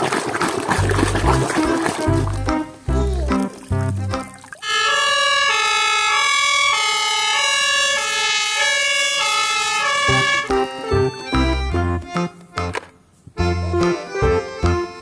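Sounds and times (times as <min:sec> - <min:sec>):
multi-tone horn: 0:04.6 - 0:11.8.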